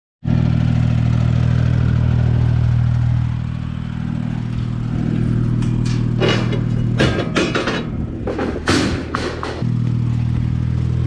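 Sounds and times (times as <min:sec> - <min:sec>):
tractor engine running steadily: 0:00.2 - 0:11.0.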